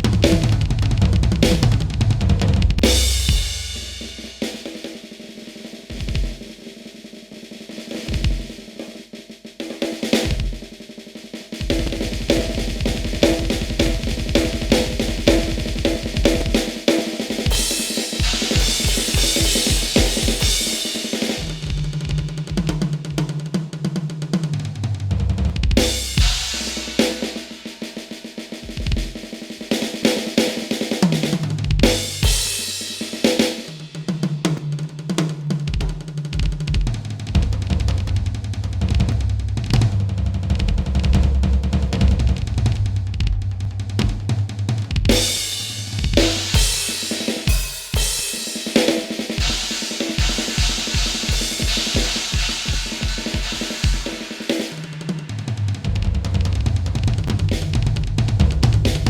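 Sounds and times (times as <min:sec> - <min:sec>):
kick drum strokes: 0:00.0 - 0:04.6, 0:11.5 - 0:23.7, 0:24.4 - 0:27.6, 0:31.1 - 0:32.9, 0:35.6 - 0:55.0, 0:55.8 - 0:59.0
cymbal crashes: 0:49.4 - 0:54.5.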